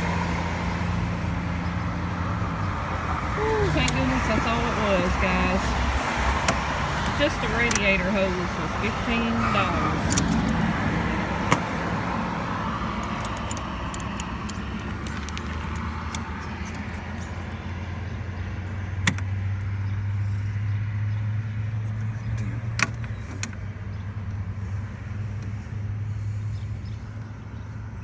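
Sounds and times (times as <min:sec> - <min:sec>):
low vehicle engine hum: 0:00.0 - 0:28.0
metallic clicks of hose clamps: 0:10.0 - 0:10.7, 0:13.0 - 0:17.0.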